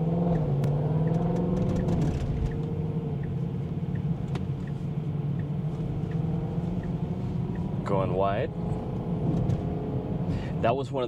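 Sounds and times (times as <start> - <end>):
light ticking: 3.2 - 6.2.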